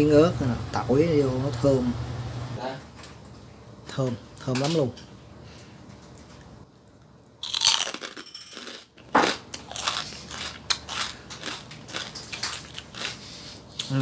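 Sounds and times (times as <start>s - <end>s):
crunching and chewing pork skin: 7.4s - 14.0s.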